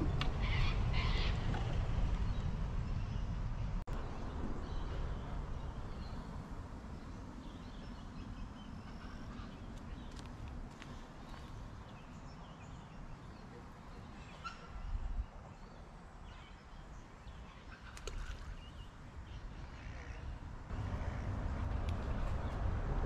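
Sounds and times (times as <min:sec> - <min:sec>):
bird calls: 0:00.0 - 0:03.4, 0:07.4 - 0:21.3.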